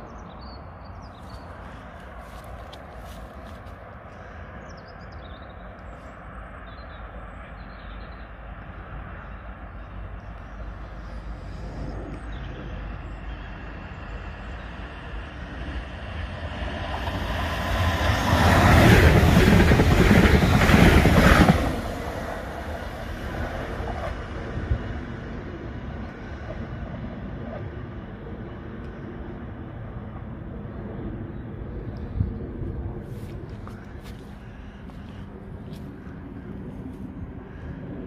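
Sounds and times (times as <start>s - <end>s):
electric train passing: 3.8s - 31.9s.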